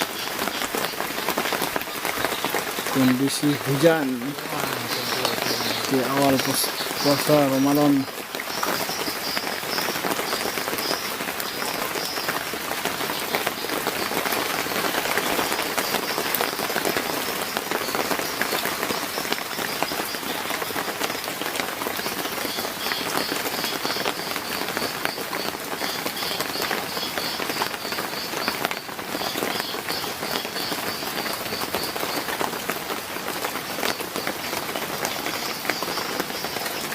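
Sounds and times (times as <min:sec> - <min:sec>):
heavy rain pouring: 0:00.0 - 0:36.9
faint high chirping: 0:02.3 - 0:12.4.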